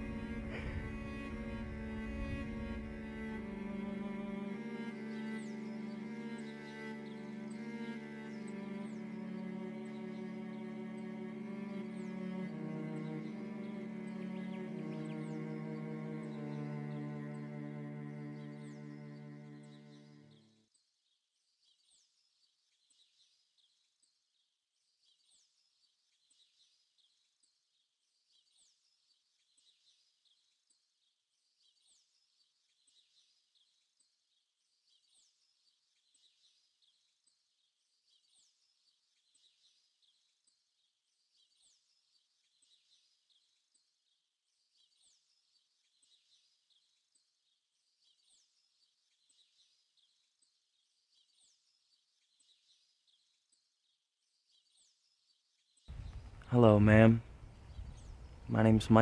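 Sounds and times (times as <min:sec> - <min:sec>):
faint birdsong: 0:00.0 - 0:59.0.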